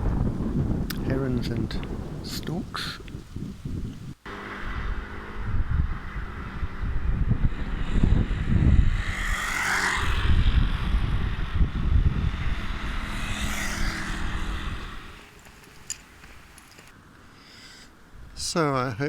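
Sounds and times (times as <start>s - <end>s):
wind buffeting microphone: 0.0s - 16.9s
rushing sound: 8.8s - 16.6s.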